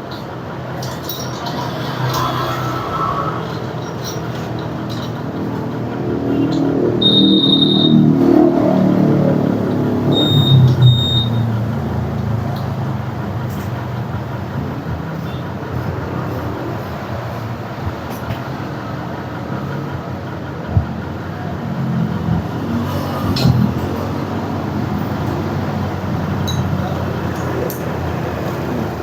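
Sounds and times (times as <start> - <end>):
vehicle engine rumbling: 0.0 - 29.0
brief high beeps: 7.0 - 8.1, 10.1 - 11.5.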